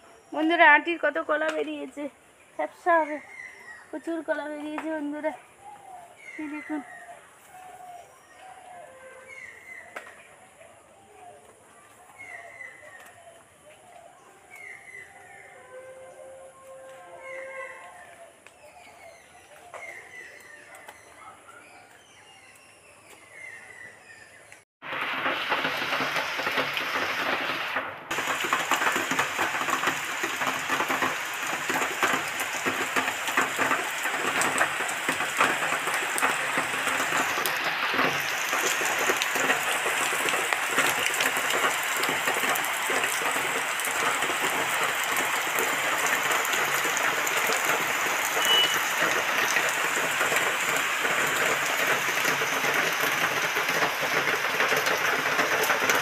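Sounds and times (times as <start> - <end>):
heavy rain on concrete: 6.2 - 7.0, 24.8 - 56.0.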